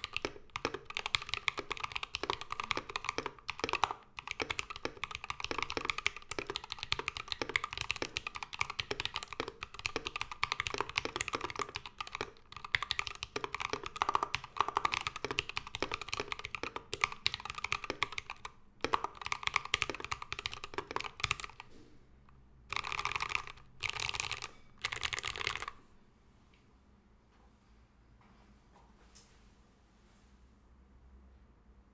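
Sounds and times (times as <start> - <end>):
mechanical keyboard typing: 0.0 - 21.8, 22.7 - 25.8.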